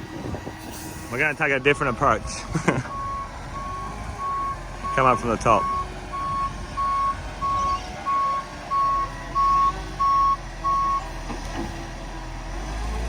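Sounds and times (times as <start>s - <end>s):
truck engine rumble: 0.0s - 13.0s
reversing alarm beeping: 1.2s - 11.0s.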